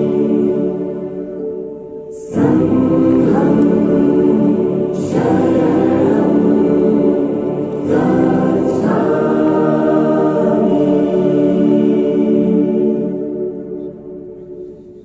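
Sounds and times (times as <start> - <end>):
choir singing in harmony: 0.0 - 15.0.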